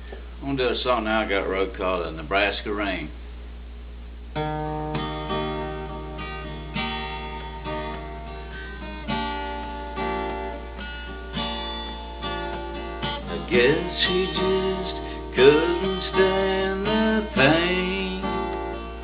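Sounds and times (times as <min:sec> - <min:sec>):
steady low hum: 0:00.0 - 0:19.0
acoustic guitar strumming chords: 0:04.3 - 0:19.0.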